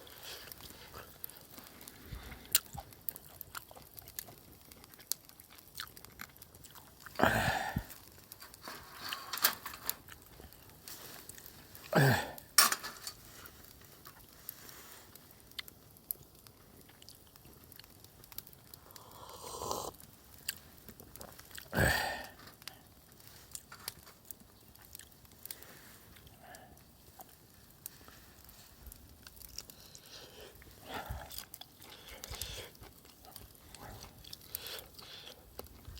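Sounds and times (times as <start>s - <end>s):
person chewing: 0.0s - 8.0s, 16.8s - 22.8s, 24.8s - 25.2s, 29.2s - 35.9s.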